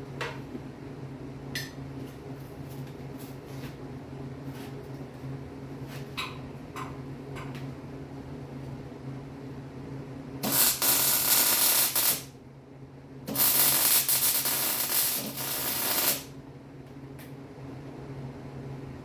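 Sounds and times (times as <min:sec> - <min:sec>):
welding arc crackling: 0:10.4 - 0:12.3, 0:13.3 - 0:16.3.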